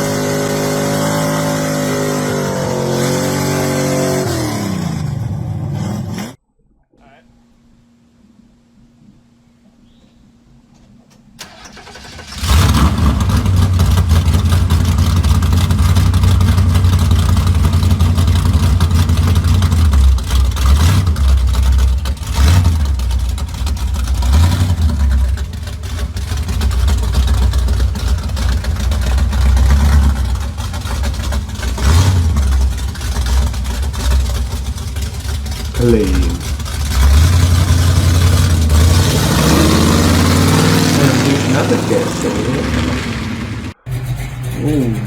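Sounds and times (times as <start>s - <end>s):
car engine deep exhaust rumble: 12.4s - 45.0s.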